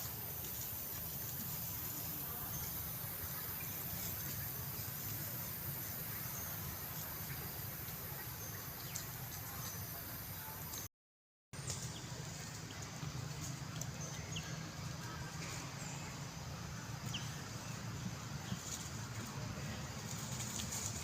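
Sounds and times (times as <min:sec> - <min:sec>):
low constant rumble: 0:11.6 - 0:21.0.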